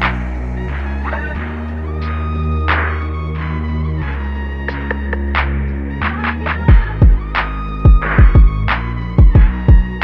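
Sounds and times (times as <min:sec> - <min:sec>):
bass and synth music: 0:00.0 - 0:10.0
percussive hits: 0:06.4 - 0:09.9.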